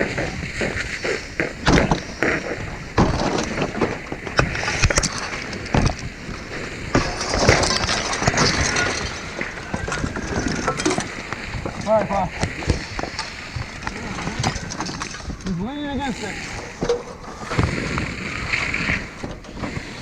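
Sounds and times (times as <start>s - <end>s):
steady rushing noise: 0.0s - 20.0s
ladder clanking and rattling: 3.0s - 15.6s.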